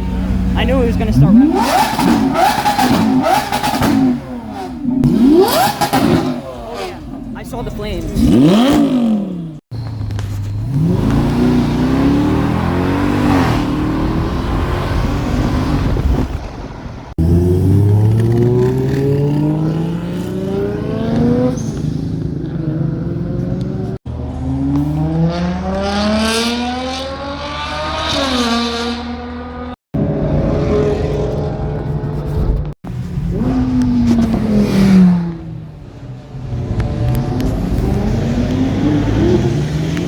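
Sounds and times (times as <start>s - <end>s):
car engines accelerating hard: 0.0s - 40.0s.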